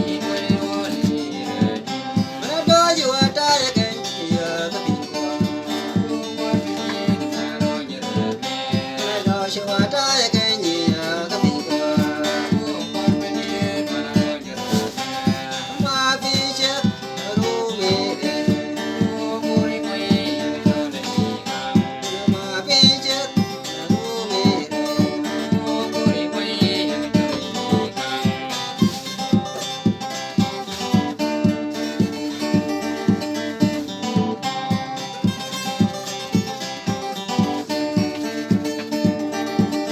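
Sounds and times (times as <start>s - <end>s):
person singing: 0.0s - 34.4s
acoustic guitar strumming: 0.0s - 39.9s.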